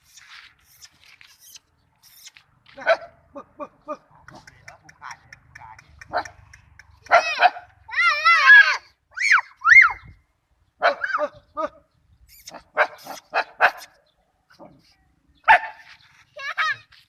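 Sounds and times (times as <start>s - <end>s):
dog barking: 2.8s - 3.2s, 6.1s - 6.4s, 7.1s - 7.7s, 10.8s - 11.3s, 12.7s - 13.9s, 15.5s - 15.9s.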